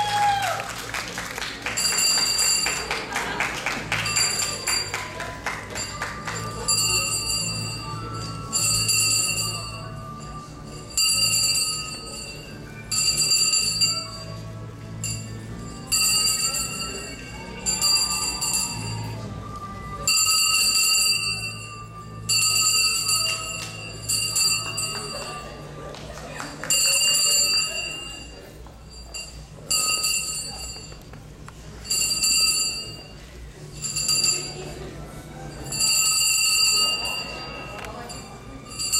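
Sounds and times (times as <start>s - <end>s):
background music: 0.0s - 30.7s
handbell ringing: 1.6s - 31.1s, 31.7s - 38.9s.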